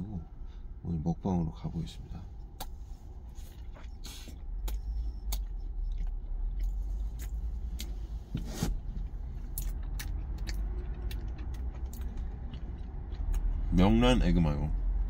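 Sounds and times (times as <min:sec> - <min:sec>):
low steady rumble: 0:00.0 - 0:15.0
chewing sandwich: 0:02.6 - 0:13.9
wet mouth clicks: 0:03.8 - 0:08.0.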